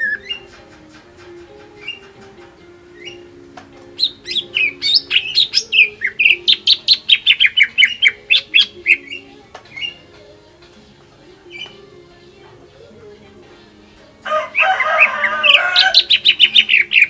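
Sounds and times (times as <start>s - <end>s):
bird singing sharp chirps: 4.0s - 10.0s.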